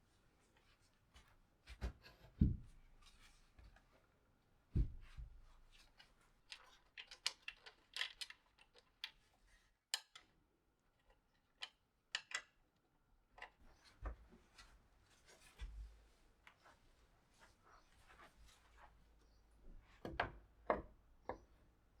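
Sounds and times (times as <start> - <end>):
soft low thumps: 4.8 - 5.4
parcel clicks taps and rustles: 6.5 - 9.2.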